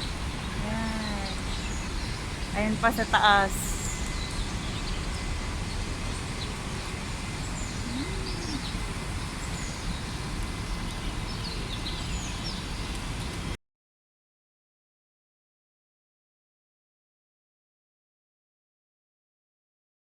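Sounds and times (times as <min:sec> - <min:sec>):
outdoor park background noise: 0:00.0 - 0:13.6
faint high bird chirps: 0:07.5 - 0:08.8
short low bird call: 0:07.7 - 0:08.8.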